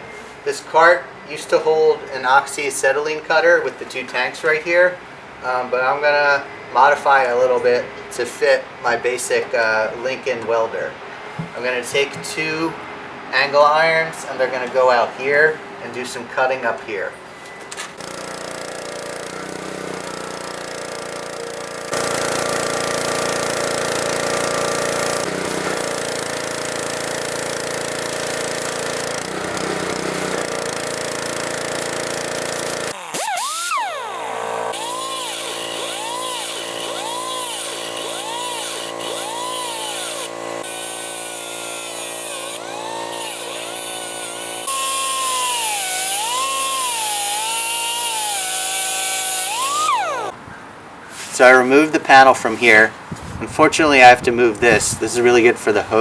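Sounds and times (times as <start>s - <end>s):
power tool cutting steel: 18.0s - 50.4s.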